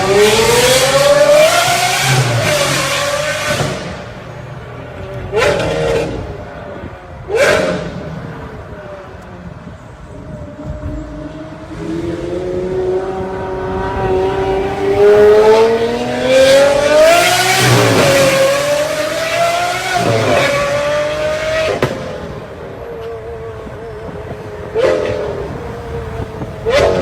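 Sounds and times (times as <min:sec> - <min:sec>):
car engine accelerating hard: 0:00.0 - 0:04.2, 0:10.6 - 0:27.0.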